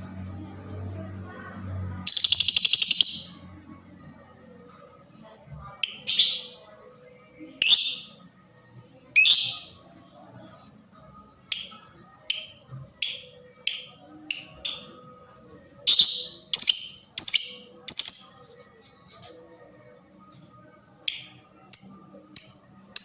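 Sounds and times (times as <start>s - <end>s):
lovebird shrill chirps: 2.1s - 3.4s, 15.9s - 18.4s.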